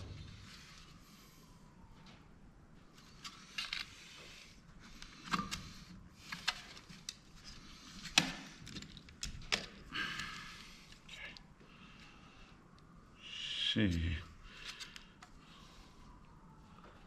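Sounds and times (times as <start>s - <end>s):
clicks and knocks of camera parts: 6.3s - 9.9s.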